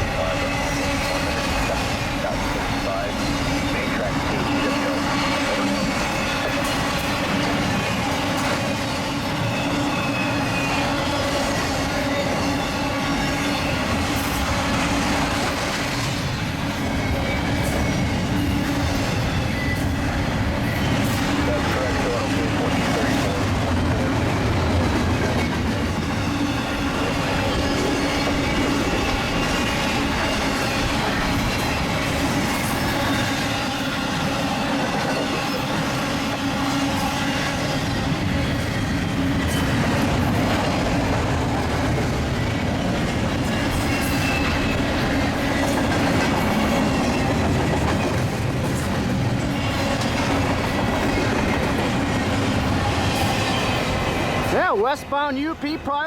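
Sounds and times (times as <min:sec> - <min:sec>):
train wheels clattering over rails: 0:00.0 - 0:54.6.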